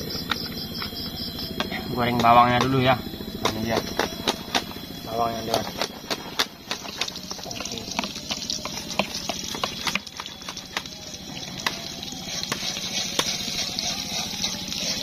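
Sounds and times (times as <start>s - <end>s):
onions sizzling in a pan: 5.7s - 15.0s.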